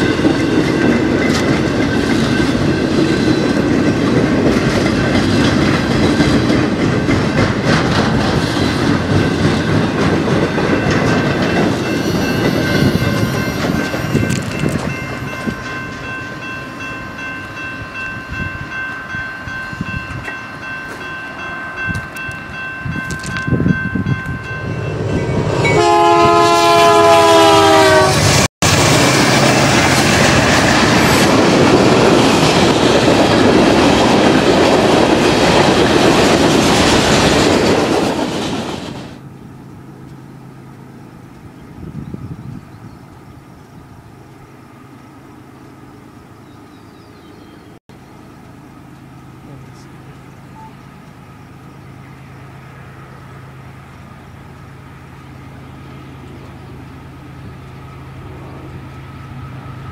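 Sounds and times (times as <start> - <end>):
rail cars rumbling and clacking: 0.0 - 59.9
locomotive horn blowing: 25.4 - 28.5
locomotives rushing past: 28.0 - 39.2.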